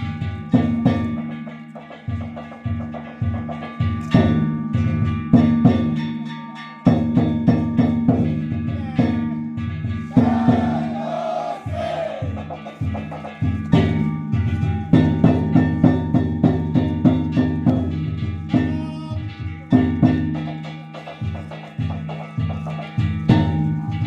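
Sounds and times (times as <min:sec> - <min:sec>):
hand gongs ringing: 0:00.0 - 0:24.0
taiko drum: 0:00.0 - 0:24.0
voices shouting: 0:10.1 - 0:12.6.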